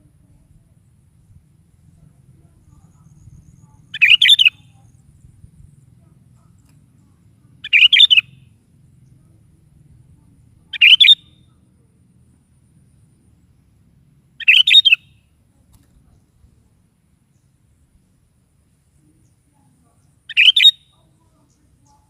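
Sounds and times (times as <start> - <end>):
bulbul warbling song: 2.6 - 5.0, 7.6 - 8.4, 10.6 - 11.5, 14.4 - 15.2, 20.0 - 22.0.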